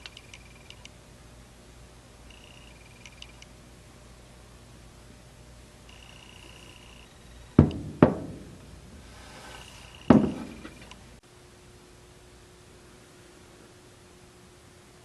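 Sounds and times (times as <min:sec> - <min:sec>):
sharp knocks with ringing decay: 0:07.6 - 0:09.0, 0:10.1 - 0:10.8.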